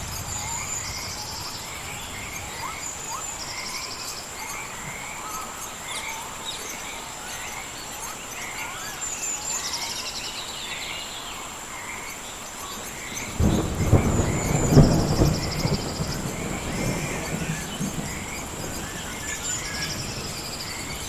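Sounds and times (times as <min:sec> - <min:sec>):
thunder rumbling: 0:00.0 - 0:05.1, 0:13.1 - 0:21.0
bird calls: 0:00.0 - 0:21.0
frogs chirping: 0:00.0 - 0:21.0
high insect drone: 0:00.0 - 0:21.0
rain hiss: 0:00.0 - 0:21.0.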